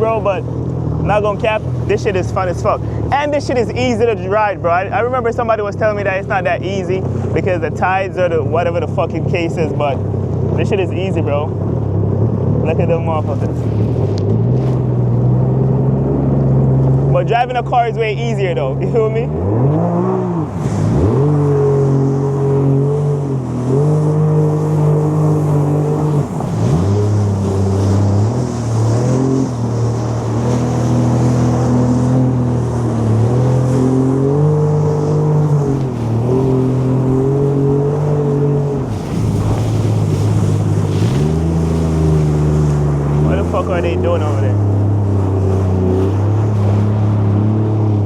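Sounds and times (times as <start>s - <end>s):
jet ski engine running: 0.0s - 48.0s.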